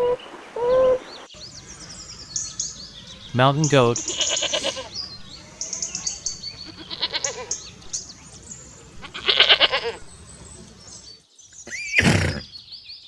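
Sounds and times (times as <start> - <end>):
goat bleating: 3.8 - 5.8, 6.5 - 7.7, 9.0 - 10.0.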